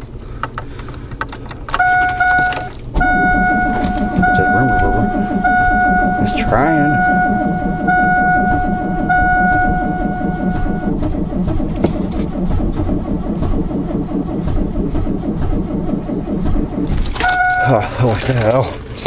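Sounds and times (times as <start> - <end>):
engine cranking without starting: 0.1 - 19.0
steady high tone: 1.8 - 11.5, 17.1 - 18.2.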